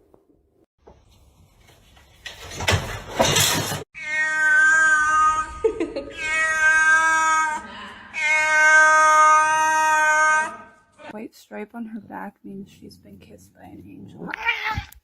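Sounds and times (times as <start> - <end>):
cat yowling: 4.0 - 7.6, 8.2 - 10.8, 14.3 - 15.0.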